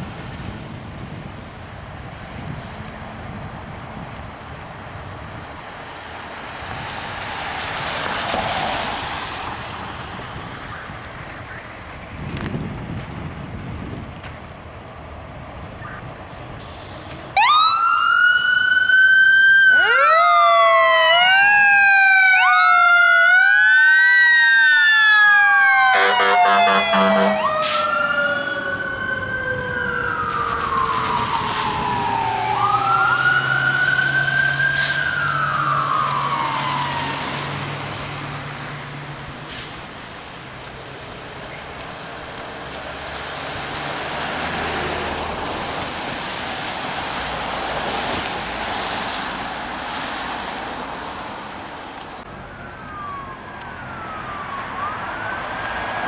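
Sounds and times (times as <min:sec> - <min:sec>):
fire engine sirens wailing: 0:00.0 - 0:13.1, 0:14.9 - 0:56.0
truck engine rumbling: 0:00.0 - 0:19.1, 0:19.7 - 0:56.0
horn blast: 0:25.9 - 0:28.0.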